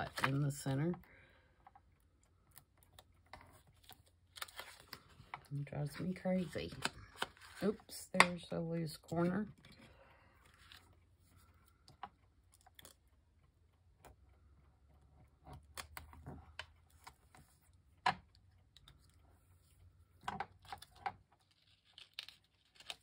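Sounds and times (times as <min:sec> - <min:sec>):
paper rustling: 0:00.0 - 0:00.6, 0:03.3 - 0:07.9.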